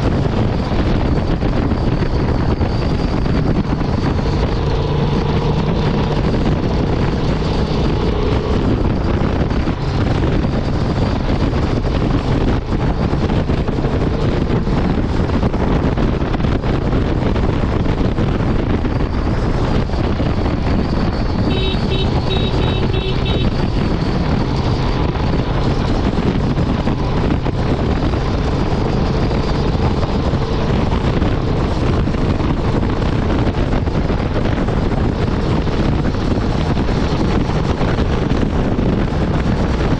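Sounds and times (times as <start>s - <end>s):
motorcycle engine cruising: 0.0s - 39.9s
wind rush on microphone: 0.0s - 39.9s
short high beeps: 21.5s - 23.6s.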